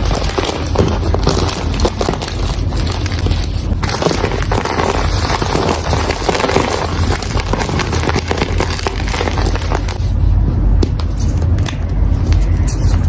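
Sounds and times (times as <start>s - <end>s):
chalk crunching and crackling: 0.0s - 10.3s
low steady rumble: 0.0s - 13.0s.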